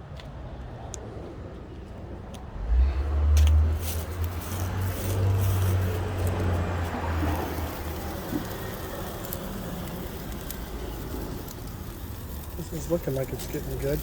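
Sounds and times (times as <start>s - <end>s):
vehicle passing by: 1.0s - 14.0s.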